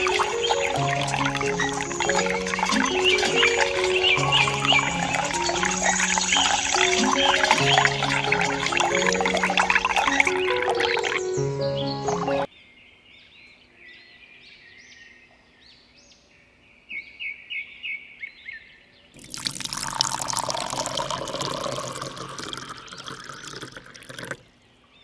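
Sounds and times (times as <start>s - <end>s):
water pouring and splashing: 0.0s - 12.5s, 19.2s - 24.5s
small birds chirping: 0.0s - 19.3s, 20.0s - 25.0s.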